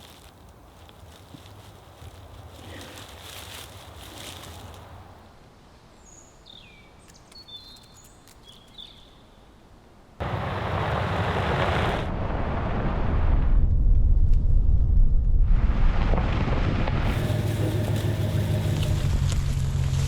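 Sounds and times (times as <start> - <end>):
deep rushing rumble: 10.2 - 20.0.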